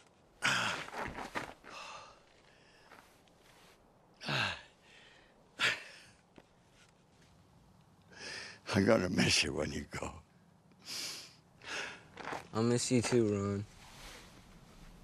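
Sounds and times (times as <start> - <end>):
person sighing heavily: 0.4 - 1.0, 1.7 - 2.3, 4.2 - 6.2.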